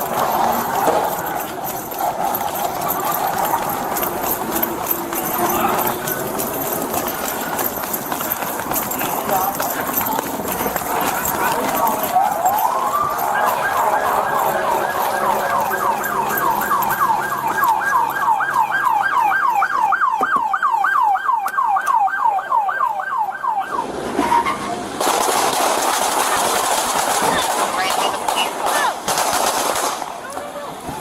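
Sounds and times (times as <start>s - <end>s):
police siren yelping: 0.0s - 8.6s, 9.5s - 24.6s.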